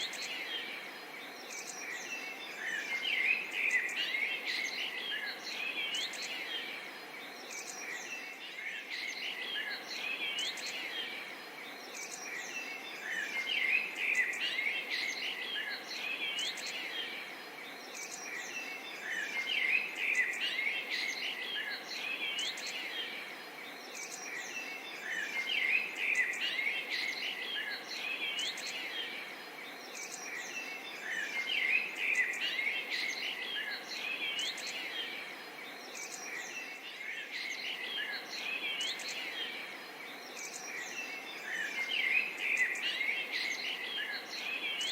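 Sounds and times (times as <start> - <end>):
birds chirping and calling: 0.0 - 44.9.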